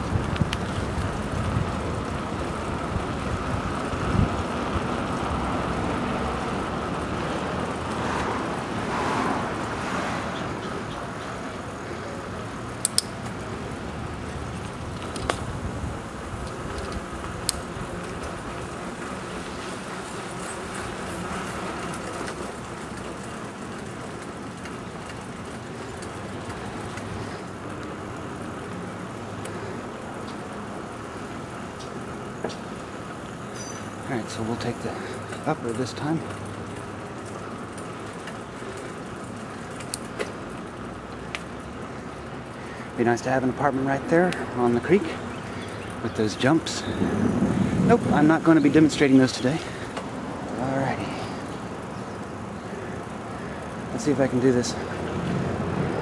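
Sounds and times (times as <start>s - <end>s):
road traffic rumble: 0.0s - 56.0s
sharp clicks: 12.8s - 13.2s
wind on microphone: 46.8s - 48.8s.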